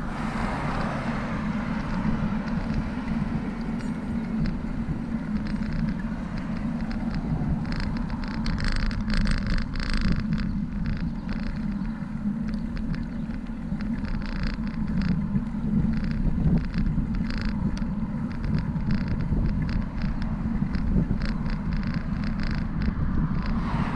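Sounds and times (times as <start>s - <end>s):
bicycle rattles and clicks: 0.0s - 23.9s
road traffic: 0.0s - 23.9s
wind rumbling on microphone: 0.0s - 23.9s.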